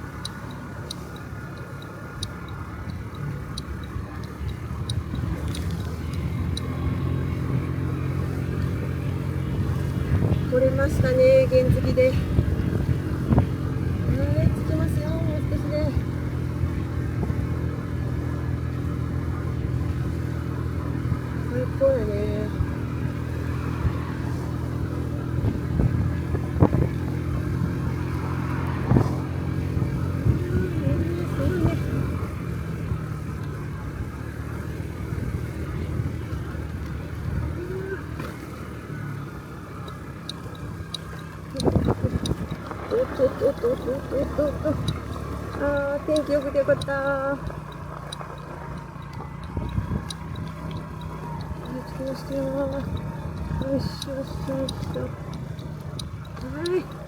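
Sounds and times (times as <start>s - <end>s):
faint sharp high ticks: 0.0s - 7.4s, 36.6s - 57.0s
scooter engine drone: 0.0s - 57.0s
wind and road noise: 0.0s - 57.0s.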